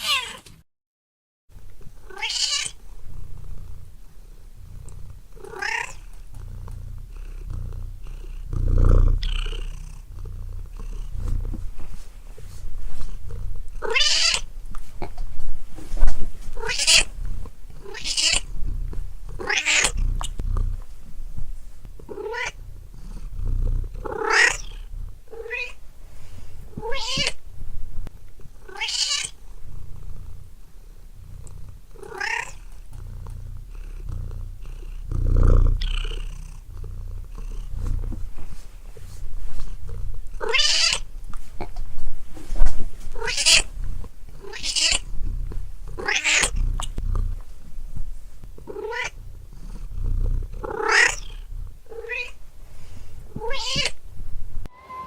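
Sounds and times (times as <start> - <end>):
cat meowing: 0.0 - 0.5, 2.0 - 2.8, 5.4 - 6.0, 13.8 - 14.5, 16.6 - 17.1, 17.8 - 18.5, 19.4 - 20.0, 22.1 - 22.6, 24.0 - 25.8, 26.8 - 27.4, 28.7 - 29.4, 32.0 - 32.6, 40.4 - 41.0, 43.2 - 43.7, 44.4 - 45.1, 46.0 - 46.6, 48.7 - 49.2, 50.7 - 52.4, 53.4 - 54.0, 54.6 - 55.0
steady low rumble: 2.8 - 28.6, 51.3 - 53.4.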